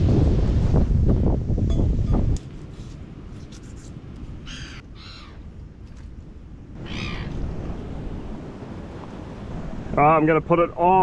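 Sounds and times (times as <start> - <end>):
wind: 0.0 - 11.0
short bird calls: 4.4 - 5.4, 6.8 - 7.4
surf: 6.8 - 11.0.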